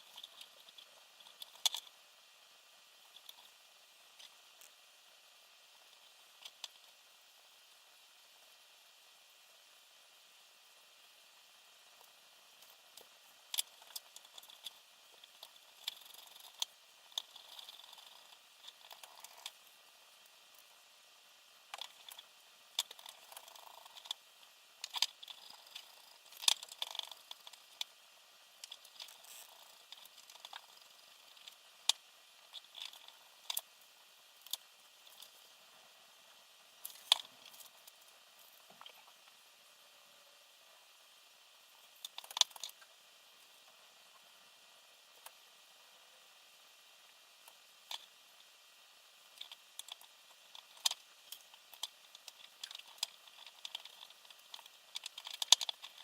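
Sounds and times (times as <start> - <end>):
small parts clicking and tapping: 0.0 - 2.0, 3.0 - 4.8, 5.8 - 7.0, 11.9 - 20.8, 21.6 - 33.7, 34.4 - 35.6, 36.8 - 39.4, 41.8 - 44.3, 47.4 - 48.4, 49.1 - 56.0.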